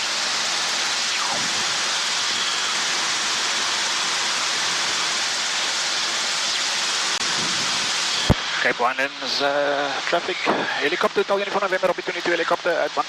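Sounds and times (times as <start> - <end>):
radio intercom hiss: 7.6 - 13.0.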